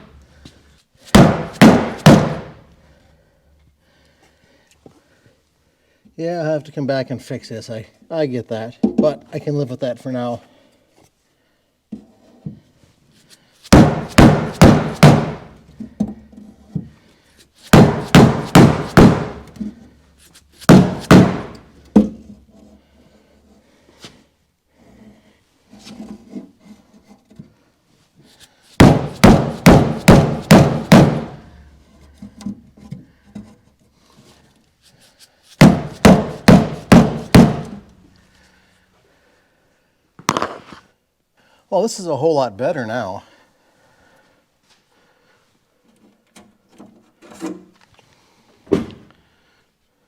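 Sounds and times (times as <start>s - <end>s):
hammer striking steel panel: 1.2s - 2.6s, 13.8s - 15.5s, 17.8s - 19.5s, 20.7s - 21.6s, 28.8s - 31.4s, 35.6s - 37.8s.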